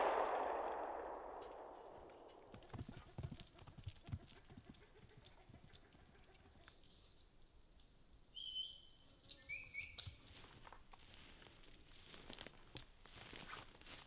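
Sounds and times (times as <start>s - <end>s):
small bird chirping: 8.3s - 10.2s
footsteps through forest brush: 9.9s - 14.0s.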